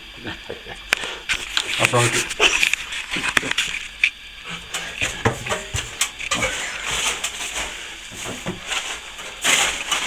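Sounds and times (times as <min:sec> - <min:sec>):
plastering tools scraping plaster: 0:04.5 - 0:10.0.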